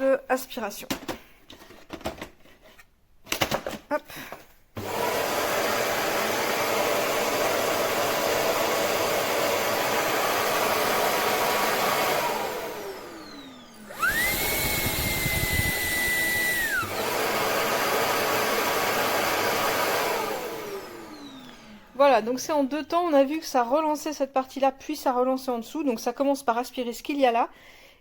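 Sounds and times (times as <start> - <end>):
vacuum suction motor rushing: 4.8 - 22.0
motor high whine: 13.2 - 17.0.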